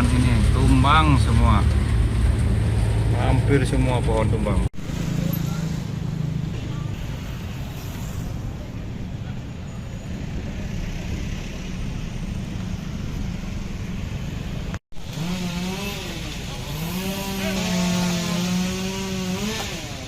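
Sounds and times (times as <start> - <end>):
outdoor street rumble: 0.0 - 20.0
chainsaw engine revving: 15.0 - 20.0.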